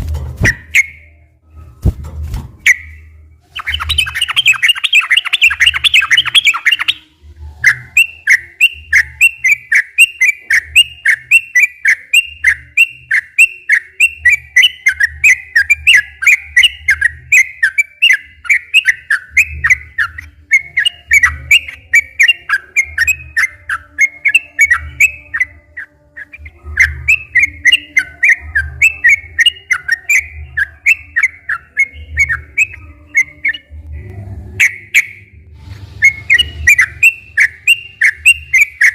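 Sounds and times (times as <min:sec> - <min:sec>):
bird chirping song: 0:00.0 - 0:38.9.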